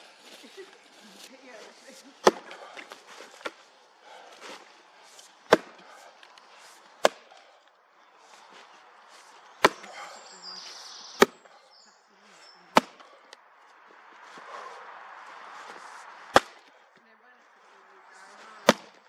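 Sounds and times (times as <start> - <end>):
splitting tool striking a log: 2.2 - 2.6, 5.5 - 5.8, 7.0 - 7.3, 9.6 - 9.9, 12.7 - 13.0, 16.3 - 16.6, 18.6 - 19.0.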